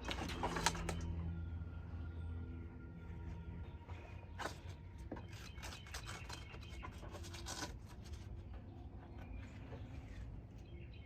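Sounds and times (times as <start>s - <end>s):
low hum: 0.0s - 11.0s
clicks and scraping of hand work: 4.4s - 10.3s.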